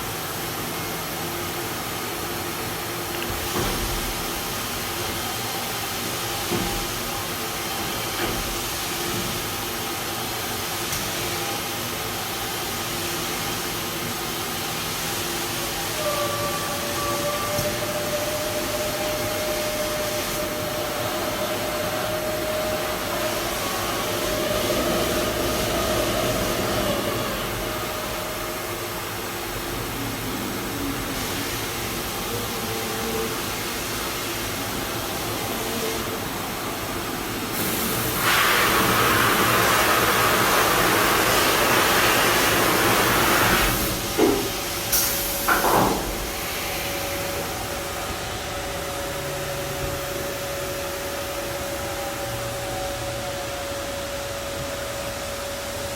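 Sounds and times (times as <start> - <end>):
loud hiss: 13.2 - 48.4.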